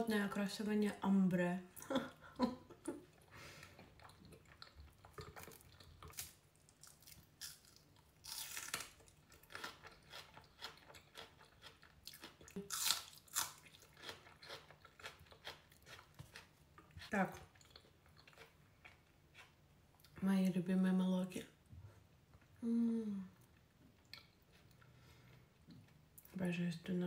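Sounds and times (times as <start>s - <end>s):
person chewing crunchy food: 3.1s - 20.1s.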